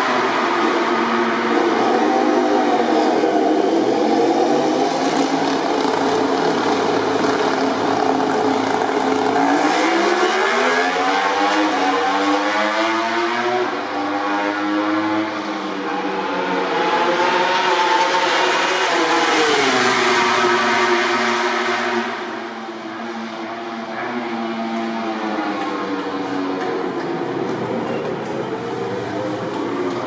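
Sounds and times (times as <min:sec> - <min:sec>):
race motorcycles at high revs: 0:00.0 - 0:22.4.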